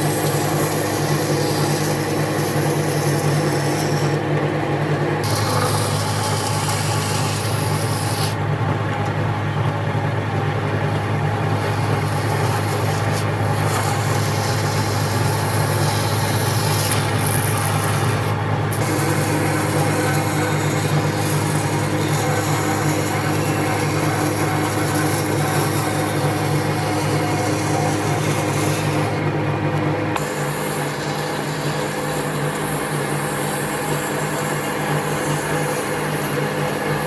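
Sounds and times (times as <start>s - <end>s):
power tool cutting wood: 0.0s - 9.2s, 10.4s - 37.0s.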